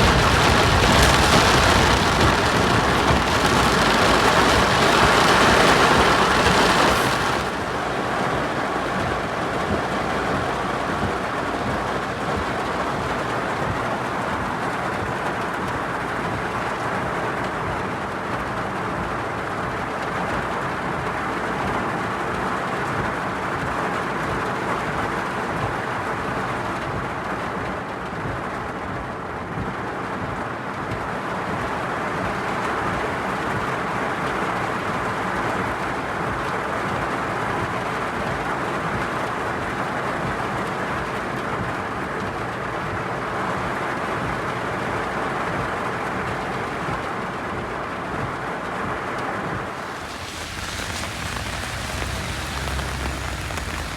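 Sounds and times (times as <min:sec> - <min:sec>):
heavy rain hissing: 0:00.0 - 0:17.0, 0:49.6 - 0:53.9
freight train passing: 0:49.7 - 0:53.9.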